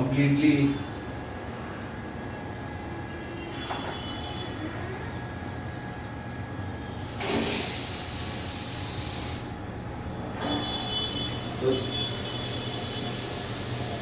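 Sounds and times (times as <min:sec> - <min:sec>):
shower spraying water: 0:07.0 - 0:09.6, 0:11.1 - 0:14.0.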